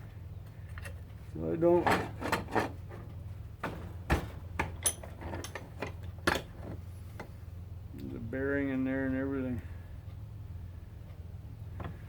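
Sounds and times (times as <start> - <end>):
steady low hum: 0.0 - 12.0
metal parts clinking: 4.6 - 6.5.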